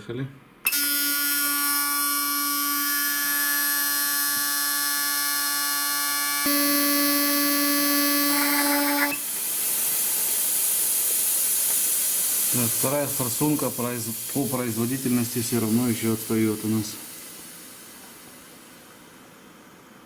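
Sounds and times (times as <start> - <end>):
electric buzz: 0.7 - 9.4
fluid spraying hiss: 6.5 - 20.0.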